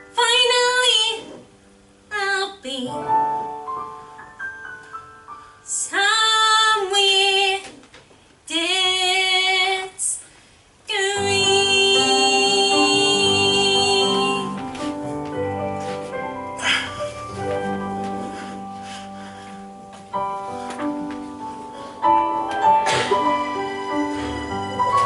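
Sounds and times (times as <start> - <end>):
woman singing a ballad: 0.0 - 1.4, 2.1 - 3.2, 5.7 - 7.8, 8.5 - 10.2, 10.9 - 14.8
backing music: 11.2 - 25.0.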